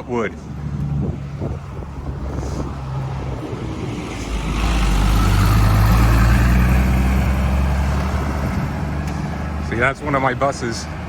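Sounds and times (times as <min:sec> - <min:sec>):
bus driving past: 0:00.3 - 0:11.0.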